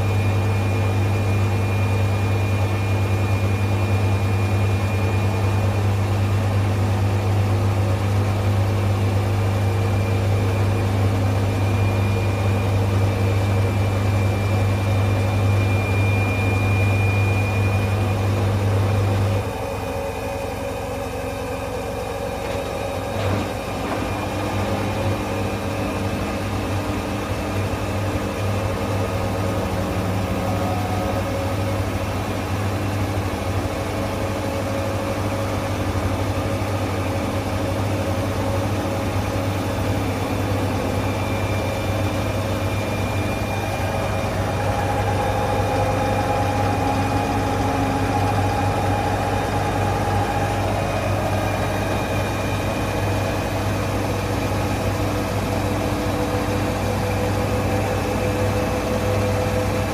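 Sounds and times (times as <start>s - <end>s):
low machine hum: 0.0s - 59.9s
faint sustained tones: 39.6s - 59.4s.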